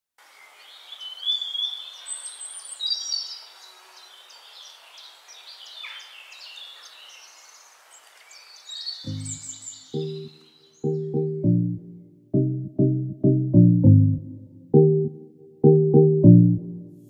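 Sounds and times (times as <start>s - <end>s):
steady outdoor hiss: 0.2s - 10.8s
wild birds chirping: 0.2s - 11.4s.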